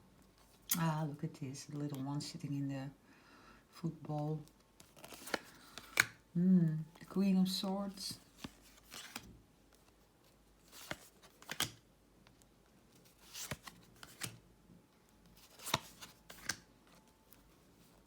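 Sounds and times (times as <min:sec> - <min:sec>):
cards sliding and slapping: 0:04.8 - 0:06.2, 0:08.2 - 0:09.9, 0:10.6 - 0:11.8, 0:13.0 - 0:14.4, 0:15.4 - 0:17.0.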